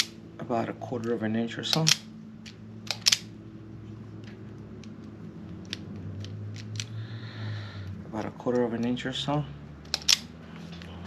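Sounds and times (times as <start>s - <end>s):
low hum: 0.0s - 11.0s
wire strippers snapping: 1.6s - 3.3s, 9.8s - 10.3s.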